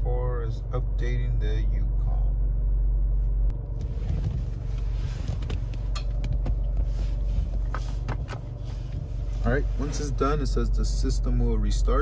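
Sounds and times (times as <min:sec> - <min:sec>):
car idling rumble: 0:00.0 - 0:12.0
phone handling knocks and rustles: 0:05.2 - 0:08.6.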